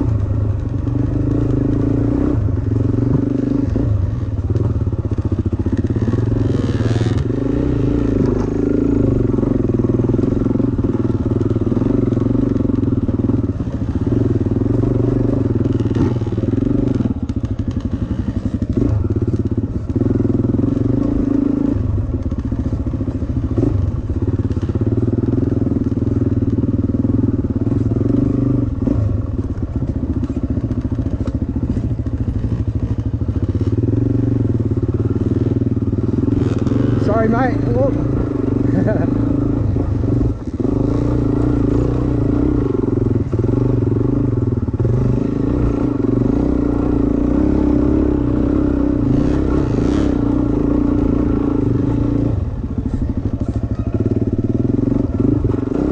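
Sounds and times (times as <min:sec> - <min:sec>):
dirt bike engine: 0:00.0 - 0:55.9
bike knocking and clattering: 0:29.4 - 0:34.0.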